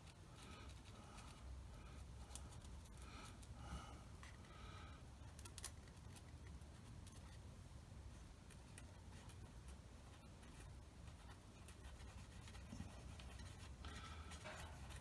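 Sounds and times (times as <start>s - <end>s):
low room hum: 0.0s - 15.0s
faint scratching strokes: 8.1s - 15.0s.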